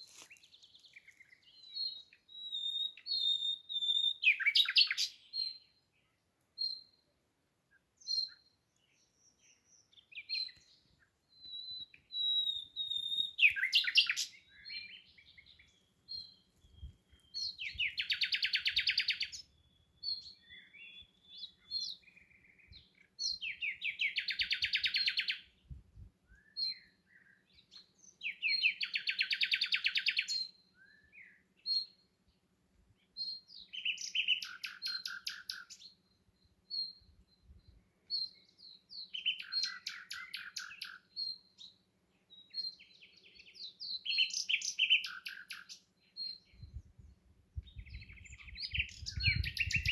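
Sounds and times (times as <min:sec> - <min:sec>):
songbird chirping and whistling: 0:00.1 - 0:05.7, 0:08.0 - 0:32.0, 0:33.2 - 0:36.0, 0:36.7 - 0:41.7, 0:42.3 - 0:47.0, 0:47.6 - 0:49.9.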